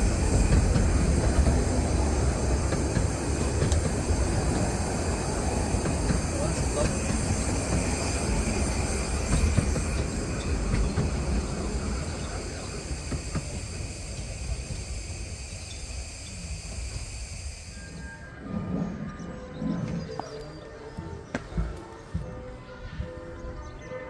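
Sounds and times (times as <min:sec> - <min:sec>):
miniature steam train rumbling: 0:00.0 - 0:20.6
small track clicks: 0:00.2 - 0:04.7.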